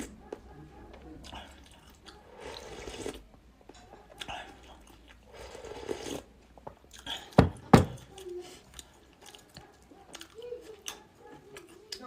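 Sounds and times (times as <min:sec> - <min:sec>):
chewing and biting food: 0:08.0 - 0:12.0.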